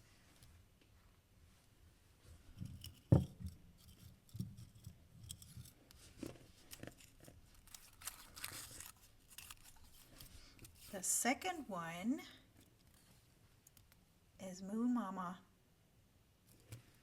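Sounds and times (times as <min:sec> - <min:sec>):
paper rustling and crackling: 0:05.6 - 0:11.0.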